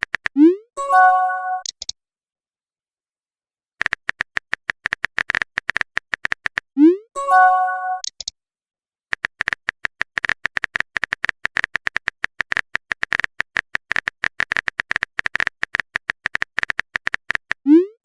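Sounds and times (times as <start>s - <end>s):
phone keyboard clicks: 3.8s - 6.6s, 9.1s - 17.6s.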